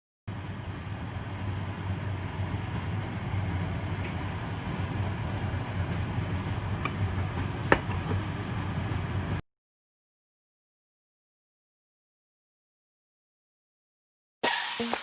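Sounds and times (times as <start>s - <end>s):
stove low rumble: 0.3s - 9.4s.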